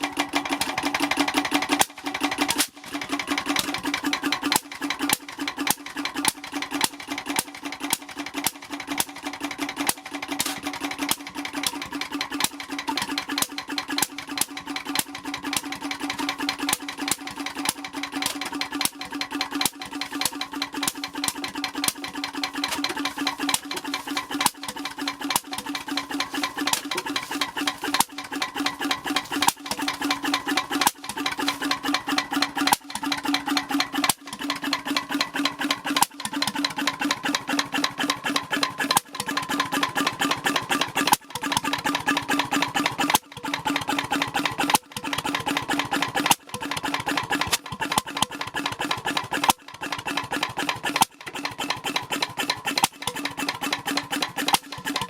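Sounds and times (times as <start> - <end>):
portable engine clattering: 0.0 - 55.0.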